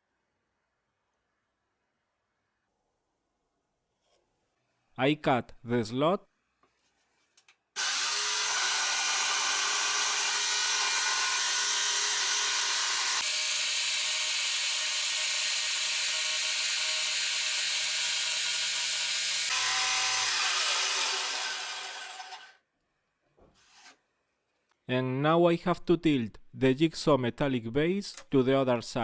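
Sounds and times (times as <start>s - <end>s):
power saw cutting wood: 7.8s - 22.6s.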